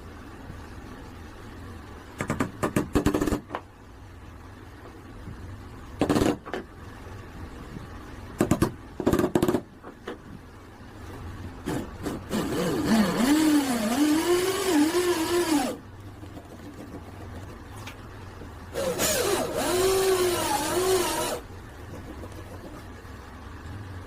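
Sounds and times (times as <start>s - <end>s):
power tool whining through wood: 12.3s - 15.8s, 18.7s - 21.4s.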